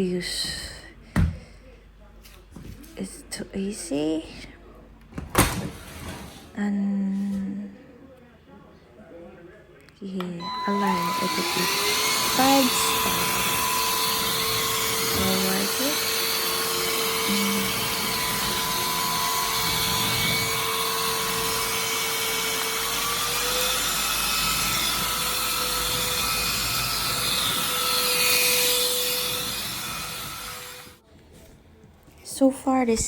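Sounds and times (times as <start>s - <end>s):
stick vacuum running: 10.4s - 31.0s.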